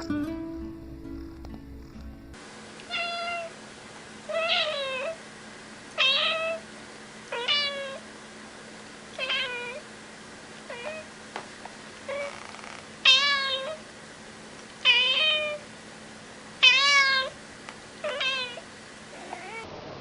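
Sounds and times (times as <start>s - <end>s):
cat meowing: 2.9s - 3.5s, 4.3s - 5.2s, 6.0s - 6.6s, 7.3s - 8.0s, 9.2s - 9.8s, 10.7s - 11.1s, 12.1s - 13.8s, 14.8s - 15.6s, 16.6s - 17.4s, 18.0s - 18.6s, 19.2s - 19.7s.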